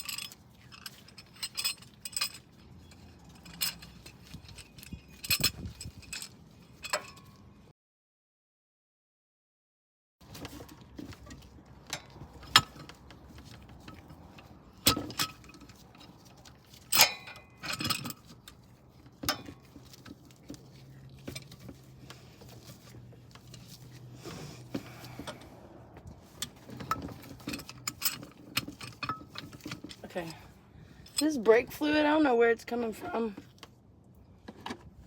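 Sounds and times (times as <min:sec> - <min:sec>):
metal tools clinking: 0:00.0 - 0:07.4, 0:12.0 - 0:24.0, 0:26.2 - 0:31.6.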